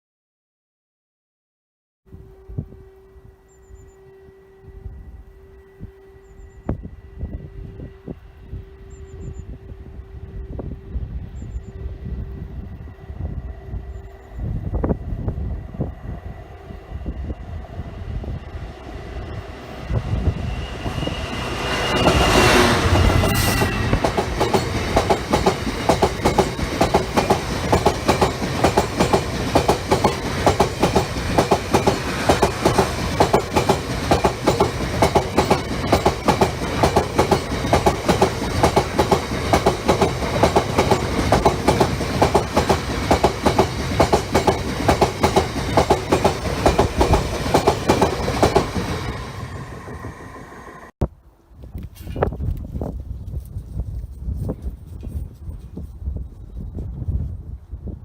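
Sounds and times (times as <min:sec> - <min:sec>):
train passing: 0:02.4 - 0:51.0
wheels clacking over rail joints: 0:22.9 - 0:49.2.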